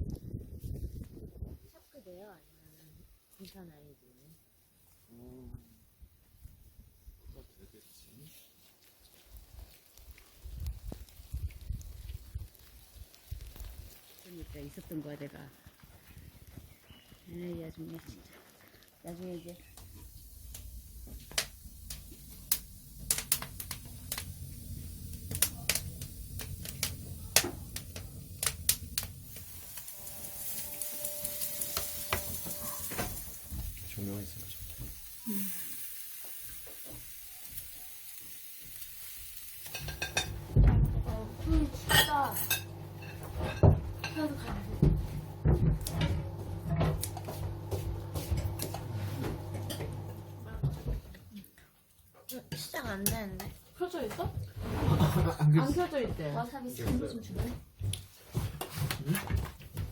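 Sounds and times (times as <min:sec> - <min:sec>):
steady low rumble: 0:20.0 - 0:29.6
low machine hum: 0:42.6 - 0:50.5.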